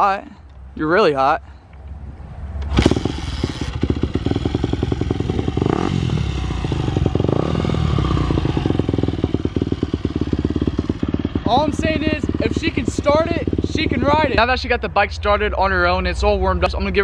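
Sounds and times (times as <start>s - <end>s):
motorcycle engine idling: 2.7s - 14.4s.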